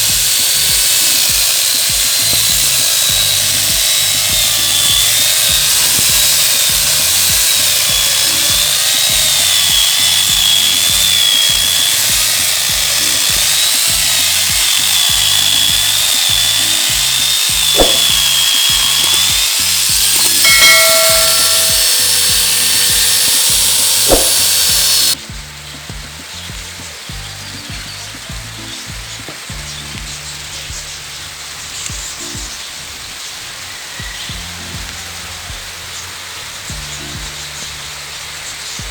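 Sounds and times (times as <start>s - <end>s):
angle grinder cutting wood: 0.0s - 38.9s.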